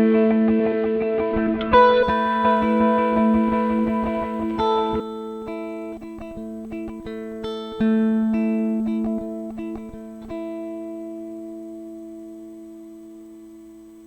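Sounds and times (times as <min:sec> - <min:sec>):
electric guitar notes and chords: 0:00.0 - 0:14.0.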